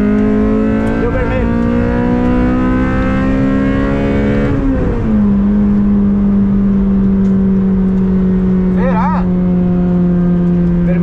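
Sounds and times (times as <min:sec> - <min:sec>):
car engine at high revs: 0:00.0 - 0:11.0.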